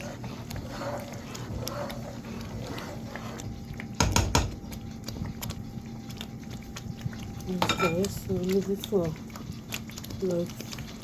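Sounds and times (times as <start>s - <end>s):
stew simmering in a pot: 0.0s - 11.0s
cookware clattering: 7.6s - 8.0s.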